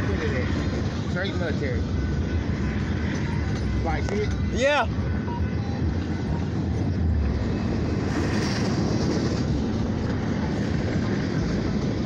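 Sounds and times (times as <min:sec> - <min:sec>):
freight train rumbling on rails: 0:00.0 - 0:12.0.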